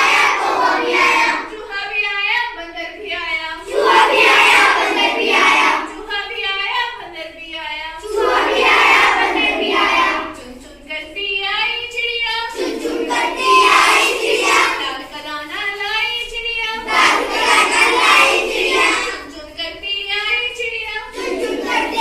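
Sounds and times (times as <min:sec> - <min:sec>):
children singing: 0:00.0 - 0:01.6, 0:03.6 - 0:06.0, 0:08.0 - 0:10.6, 0:12.1 - 0:15.1, 0:16.6 - 0:19.6, 0:20.4 - 0:22.0.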